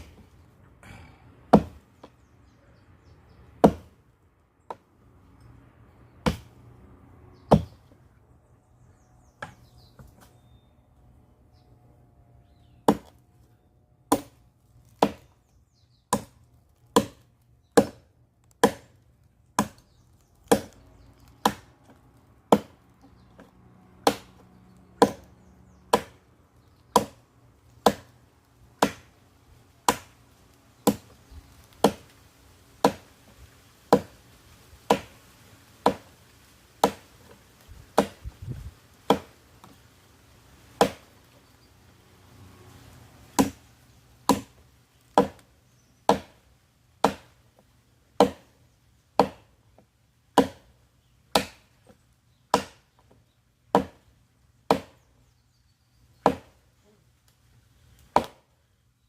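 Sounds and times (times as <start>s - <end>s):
firewood being chopped: 0.0s - 2.2s, 3.6s - 4.0s, 6.1s - 6.6s, 7.4s - 8.0s, 9.4s - 10.4s, 12.8s - 13.2s, 14.1s - 15.4s, 16.1s - 29.1s, 29.8s - 30.2s, 30.8s - 33.1s, 33.8s - 34.2s, 34.8s - 36.2s, 36.8s - 39.8s, 40.7s - 41.1s, 43.3s - 46.4s, 47.0s - 49.6s, 50.3s - 50.7s, 51.3s - 51.9s, 52.5s - 54.1s, 54.7s - 55.1s, 56.2s - 56.6s, 57.2s - 58.5s.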